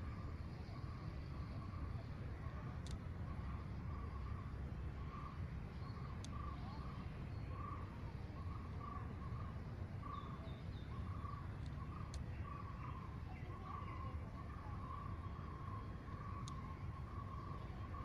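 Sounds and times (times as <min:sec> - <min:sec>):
steady low rumble: 0:00.0 - 0:18.0
bird calls: 0:05.0 - 0:18.0.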